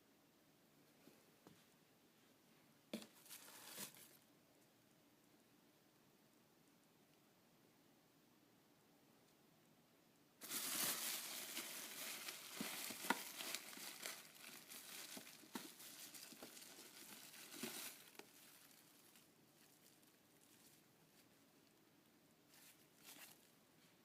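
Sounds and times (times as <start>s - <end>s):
packaging crinkling: 10.4s - 20.8s.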